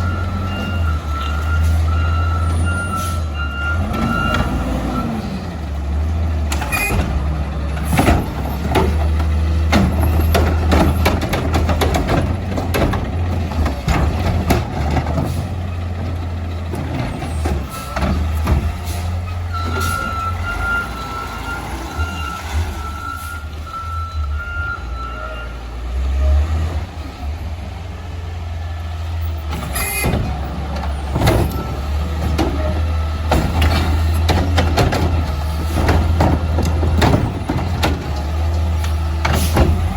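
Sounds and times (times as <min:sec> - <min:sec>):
reversing beeps: 0:00.0 - 0:05.2, 0:19.5 - 0:25.7
garbage truck engine rumble: 0:00.0 - 0:39.9
knocks and clatter: 0:06.4 - 0:19.0, 0:29.5 - 0:39.9.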